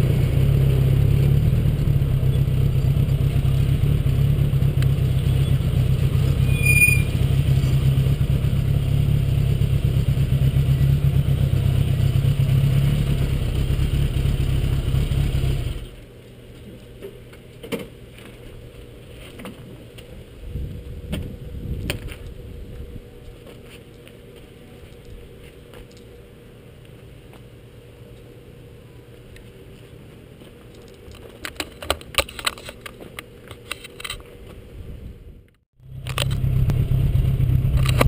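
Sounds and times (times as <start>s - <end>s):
motorcycle engine running: 0.0s - 16.0s, 35.8s - 38.0s.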